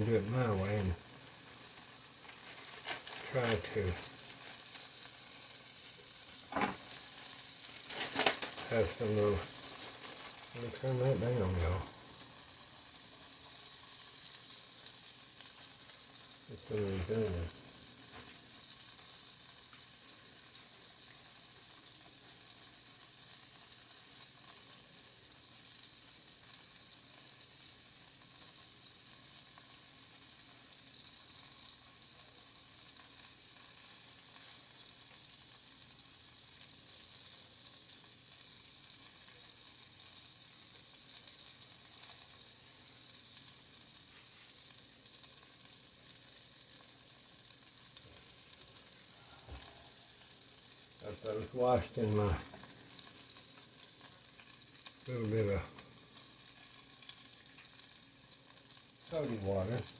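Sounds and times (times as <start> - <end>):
onions sizzling in a skillet: 0.0 - 59.9.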